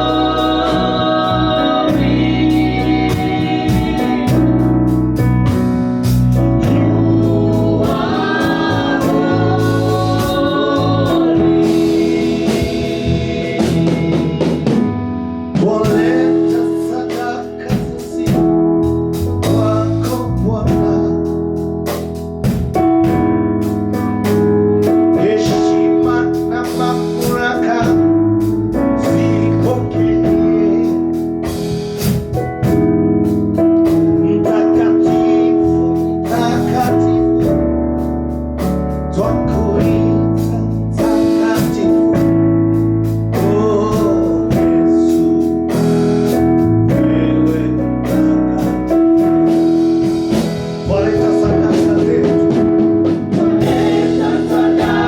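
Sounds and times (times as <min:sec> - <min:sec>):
person singing: 0:00.0 - 0:04.6, 0:06.6 - 0:14.8, 0:15.5 - 0:21.2, 0:39.2 - 0:42.3, 0:43.3 - 0:45.4
organ-like keyboard note: 0:00.0 - 0:55.0
steady drum beat: 0:00.0 - 0:55.0.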